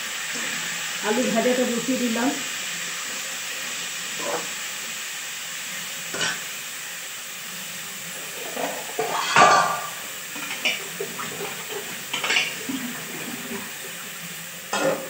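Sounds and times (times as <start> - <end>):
potatoes sizzling in oil: 0.0 - 15.0
kitchen utensils clinking: 6.1 - 6.5, 8.2 - 12.9, 14.7 - 15.0.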